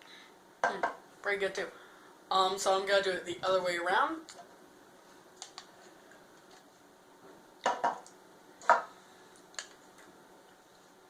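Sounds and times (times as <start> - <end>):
drinking glasses knocking: 7.7 - 8.0.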